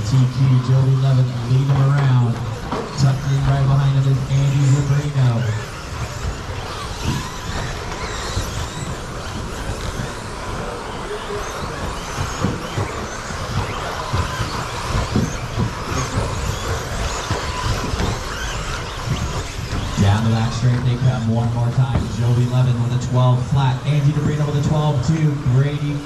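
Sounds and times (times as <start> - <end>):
rc truck motor whines: 0.0 - 26.0
tyre noise: 0.0 - 26.0
low thuds: 11.6 - 25.8.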